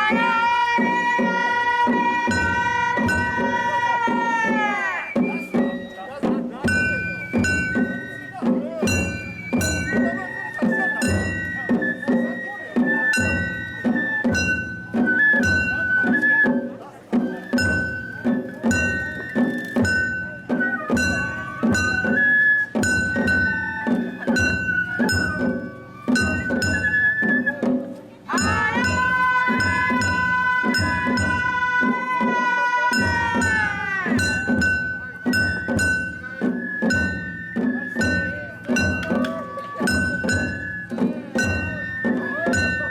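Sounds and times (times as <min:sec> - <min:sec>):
bamboo flute melody: 0:00.0 - 0:42.9
ringing metal percussion: 0:00.0 - 0:42.9
taiko drum strikes: 0:00.8 - 0:42.9
clanging metal hand gongs: 0:06.6 - 0:16.4, 0:17.5 - 0:27.6, 0:28.3 - 0:32.1, 0:32.8 - 0:42.9.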